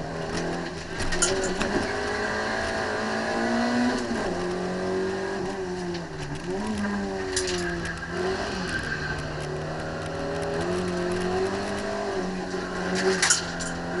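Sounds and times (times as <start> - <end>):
car engine running hard: 0.0 - 14.0.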